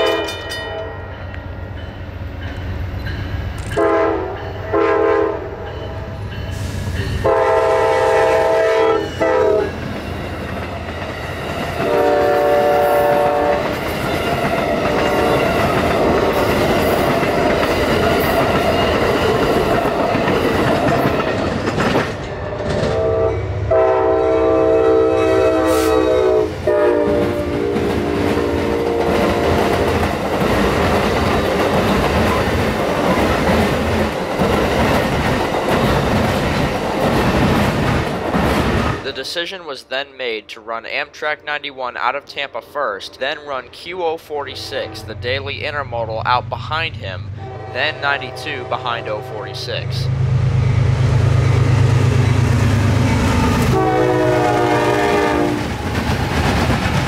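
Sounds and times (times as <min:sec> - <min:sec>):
train horn blasts: 0:00.0 - 0:01.0, 0:03.7 - 0:09.8, 0:11.8 - 0:13.7, 0:14.9 - 0:15.5, 0:22.6 - 0:30.0, 0:47.4 - 0:50.0, 0:53.1 - 0:55.7
train cars rumbling past: 0:00.0 - 0:39.4, 0:42.4 - 0:57.0
wheels clacking over rail joints: 0:13.6 - 0:23.0.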